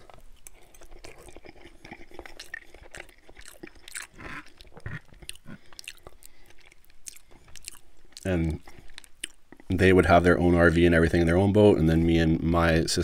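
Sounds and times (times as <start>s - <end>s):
close chewing mouth sounds: 0.0s - 9.8s.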